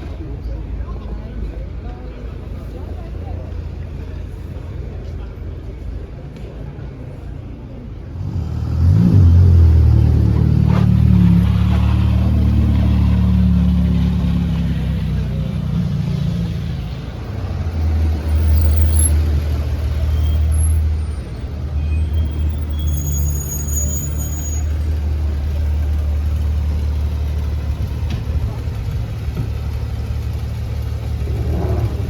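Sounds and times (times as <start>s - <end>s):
car engine revving and droning: 8.2s - 20.8s, 24.4s - 32.0s.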